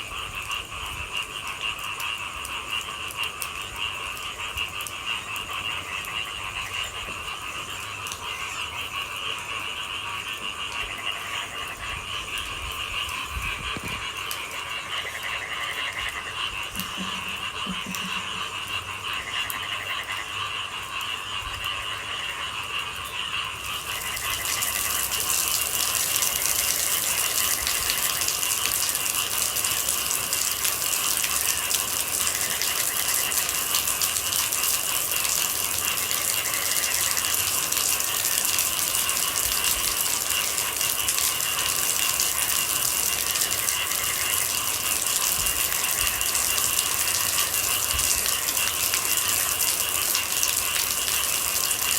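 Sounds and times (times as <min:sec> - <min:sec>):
frogs and insects trilling: 0:00.0 - 0:51.9
low frog croaks: 0:00.0 - 0:51.9
rain hissing: 0:16.6 - 0:19.1, 0:23.6 - 0:51.9.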